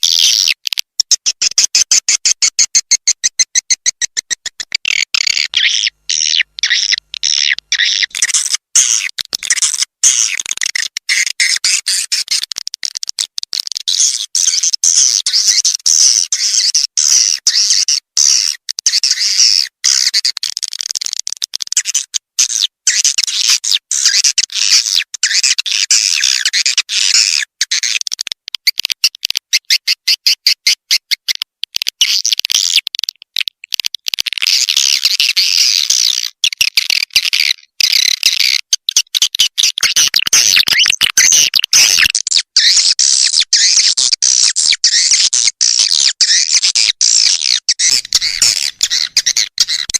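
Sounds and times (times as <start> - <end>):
fast run of clicks: 0.6 - 5.6, 6.9 - 14.6, 20.1 - 22.2, 27.6 - 29.5, 31.1 - 35.4, 36.0 - 49.9.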